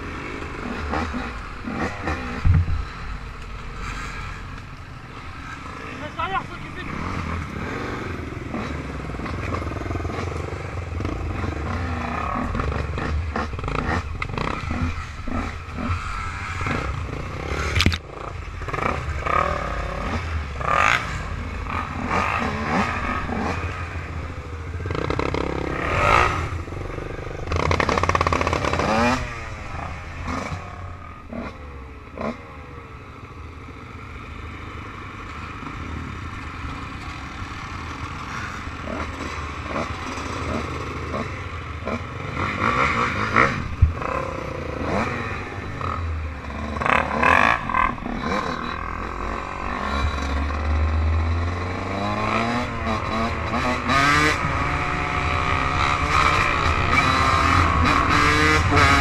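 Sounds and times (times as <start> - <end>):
off-road engines revving: 0.0 - 59.0.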